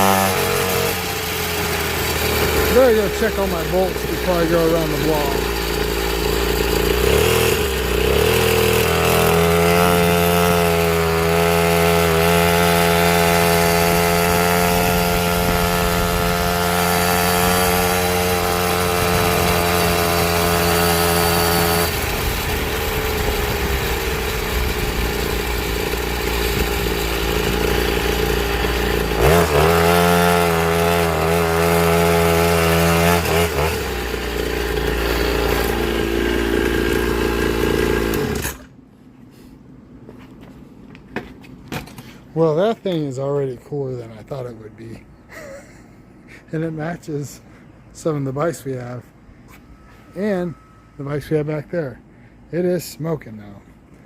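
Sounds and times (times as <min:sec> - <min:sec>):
two-stroke engine revving: 0:00.0 - 0:38.7.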